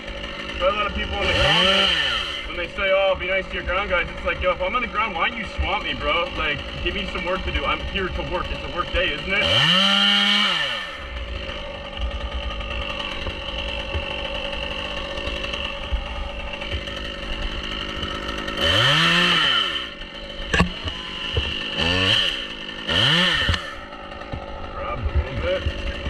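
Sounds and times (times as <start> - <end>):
chainsaw idling and revving: 0.0 - 26.0.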